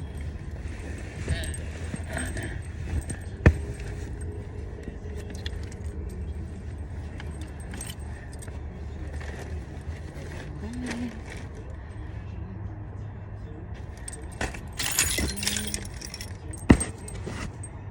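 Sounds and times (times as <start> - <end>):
small objects clinking and rattling: 14.0 - 17.3.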